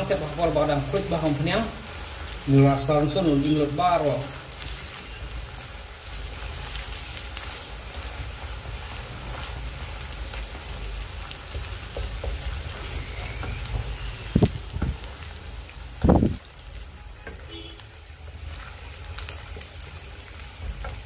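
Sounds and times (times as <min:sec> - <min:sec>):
paste sizzling in oil: 0:00.0 - 0:21.0
wooden spatula stirring: 0:06.1 - 0:15.4, 0:16.8 - 0:21.0.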